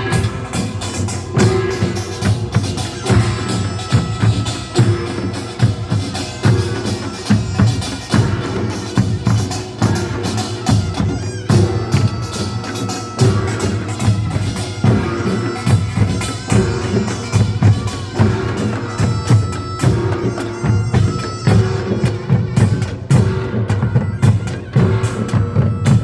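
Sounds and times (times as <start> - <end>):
drums beating: 0.0 - 26.0
small gongs clanging: 0.0 - 26.0.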